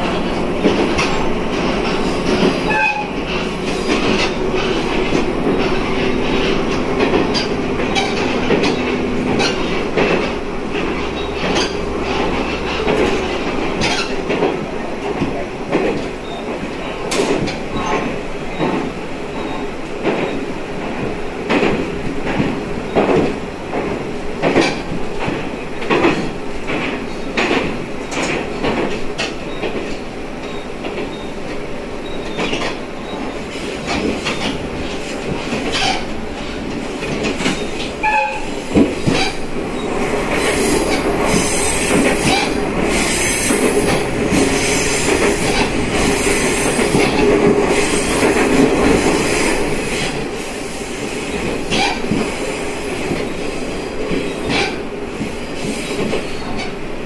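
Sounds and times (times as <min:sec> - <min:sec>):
wheels clicking over rails: 0:00.0 - 0:56.8
railcar running noise: 0:00.0 - 0:57.0
high wheel squeal: 0:37.4 - 0:48.2.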